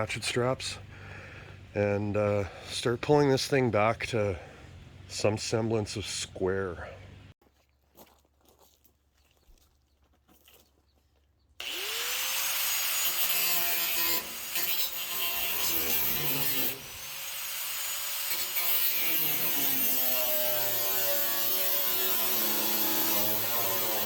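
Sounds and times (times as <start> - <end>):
angle grinder cutting steel: 11.6 - 24.0.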